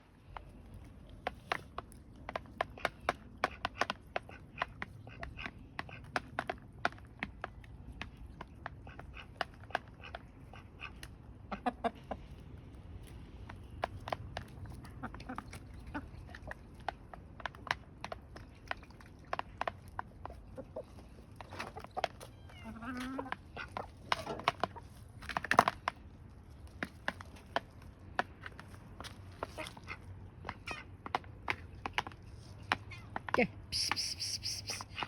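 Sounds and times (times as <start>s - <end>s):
chickens pecking at feed: 0.0s - 35.0s
chickens clucking: 0.4s - 12.5s, 13.6s - 25.4s, 33.7s - 35.0s.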